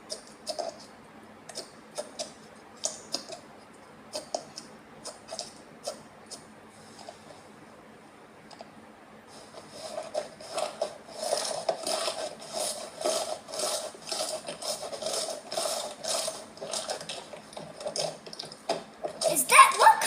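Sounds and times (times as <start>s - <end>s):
slime squishing and crackling: 9.7s - 20.0s.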